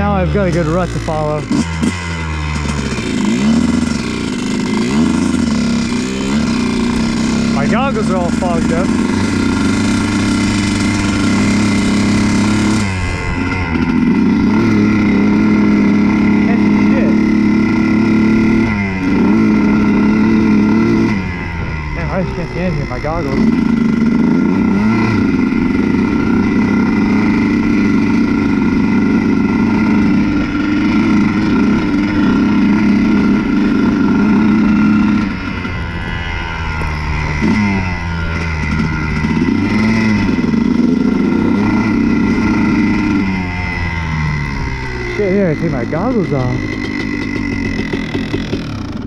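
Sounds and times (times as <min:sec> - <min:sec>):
two-stroke motorcycle engine: 0:00.0 - 0:49.0.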